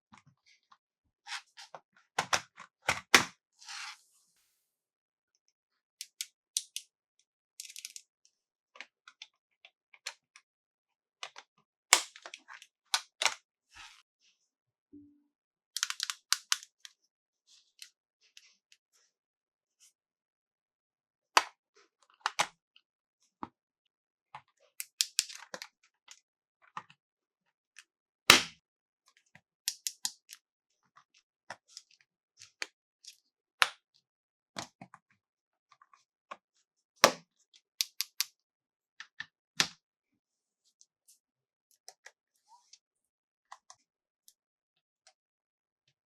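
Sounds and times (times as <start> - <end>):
plastic toy parts clicking and knocking: 6.0 - 6.9, 7.6 - 8.1, 15.8 - 16.8, 37.8 - 38.3.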